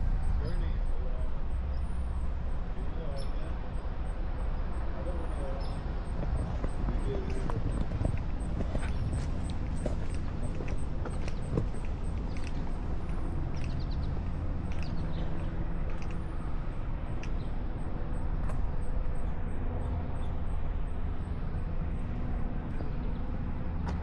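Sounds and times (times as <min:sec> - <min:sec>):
footsteps on a trail: 0:06.0 - 0:16.3.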